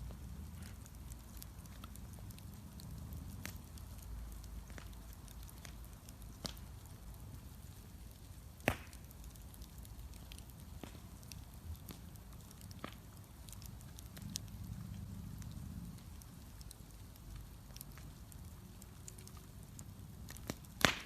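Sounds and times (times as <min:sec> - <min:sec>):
bonfire crackling and popping: 0:00.0 - 0:21.0
loud snap of fire: 0:00.0 - 0:21.0.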